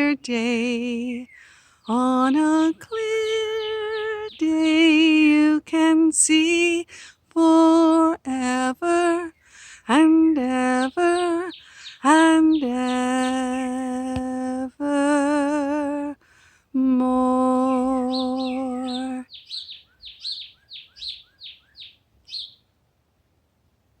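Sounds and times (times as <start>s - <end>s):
woman singing long notes: 0.0s - 19.3s
small bird chirping: 1.0s - 5.0s, 10.5s - 14.4s, 17.6s - 22.7s.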